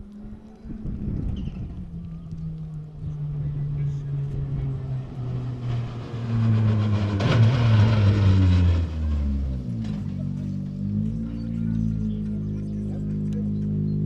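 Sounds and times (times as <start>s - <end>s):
rally car engine passing: 0.0s - 14.0s.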